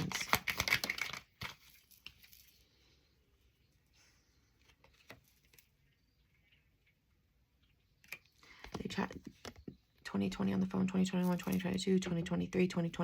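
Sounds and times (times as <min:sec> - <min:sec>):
cards rustling and snapping: 0:00.0 - 0:02.6, 0:04.6 - 0:06.0.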